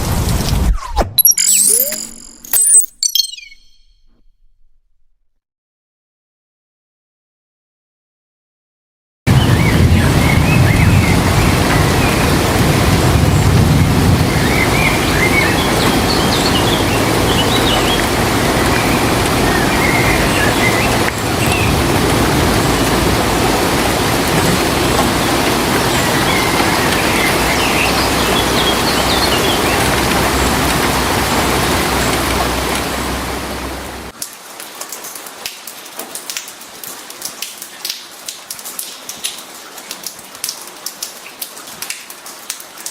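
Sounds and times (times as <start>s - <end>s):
short high chirps: 1.2s - 4.8s
heavy rain hissing: 9.3s - 34.1s
raindrops pattering: 9.3s - 42.9s.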